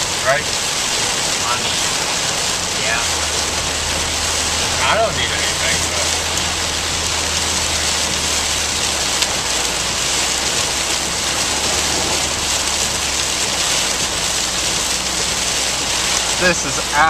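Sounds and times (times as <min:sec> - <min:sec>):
heavy rain on car roof: 0:00.0 - 0:17.0
low drone: 0:00.0 - 0:17.0.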